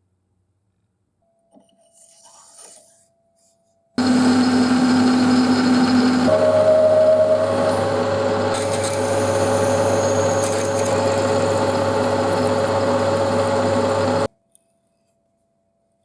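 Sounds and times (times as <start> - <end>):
power tool cutting: 4.0 - 14.3.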